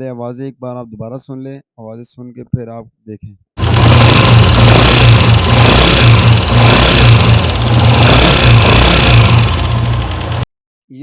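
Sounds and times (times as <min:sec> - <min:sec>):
motorcycle engine clattering: 0:03.6 - 0:10.4.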